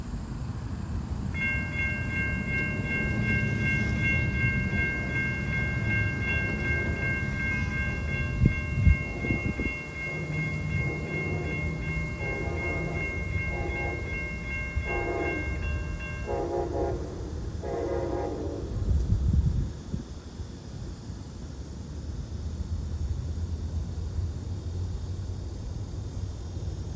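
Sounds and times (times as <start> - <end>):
train rumble: 0.0 - 26.9
high-pitched ringing: 1.4 - 16.8
locomotive horn blasts: 8.8 - 18.6.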